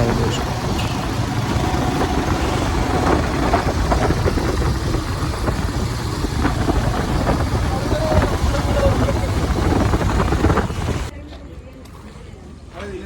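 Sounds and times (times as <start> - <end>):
motorcycle engine running: 0.0 - 11.1
road and traffic noise: 0.0 - 13.0.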